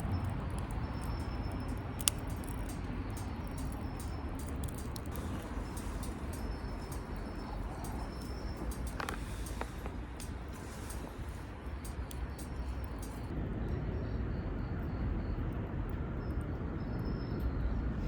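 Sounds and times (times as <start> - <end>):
fire popping: 0.0 - 13.3
wood fire burning in stove: 0.0 - 13.3.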